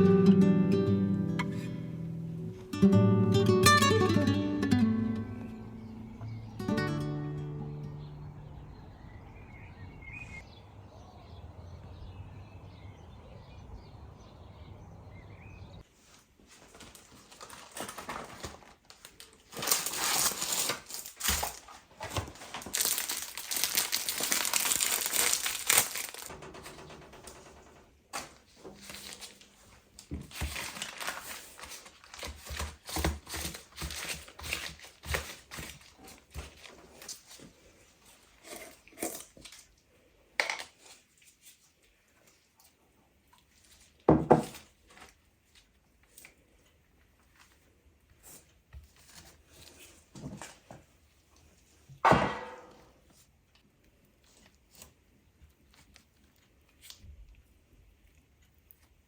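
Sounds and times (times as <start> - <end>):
crinkling and rustling handling: 15.8 - 27.0, 27.8 - 52.0, 53.0 - 59.0.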